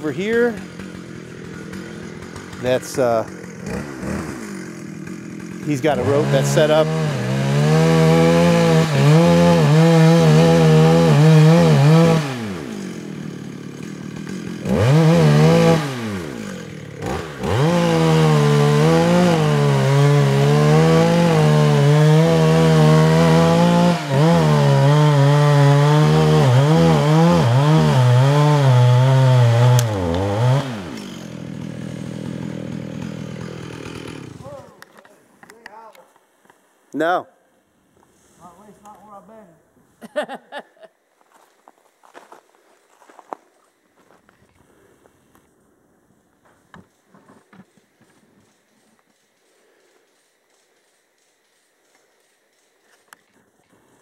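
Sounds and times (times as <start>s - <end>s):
chainsaw cutting wood: 0.0s - 35.0s.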